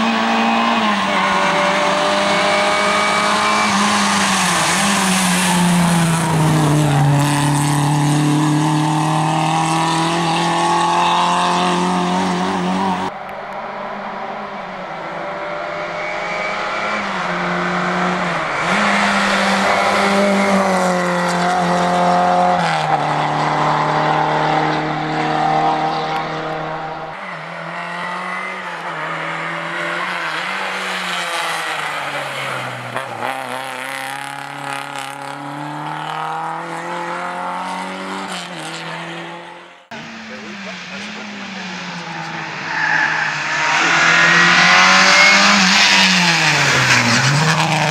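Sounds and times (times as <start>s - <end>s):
rally car engine revving: 0.0s - 13.2s, 14.6s - 47.9s.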